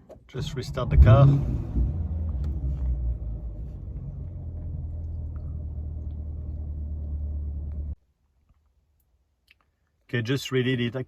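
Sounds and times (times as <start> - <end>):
car engine idling: 0.4 - 8.0.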